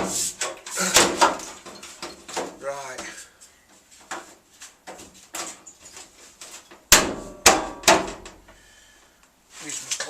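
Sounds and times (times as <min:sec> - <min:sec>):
loud metal clanks: 0:06.9 - 0:08.4.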